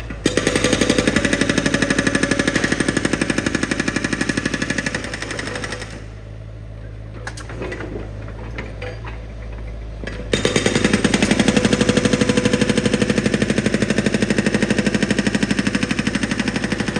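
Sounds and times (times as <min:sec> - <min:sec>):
breaker drill hammering: 0:00.0 - 0:06.1, 0:10.3 - 0:16.9.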